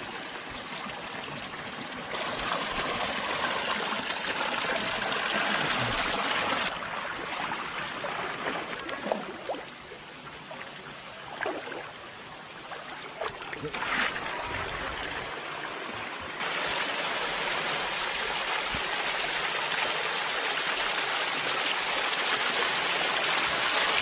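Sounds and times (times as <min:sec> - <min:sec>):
stream and waterfall rushing: 0:02.1 - 0:07.7, 0:13.8 - 0:24.0.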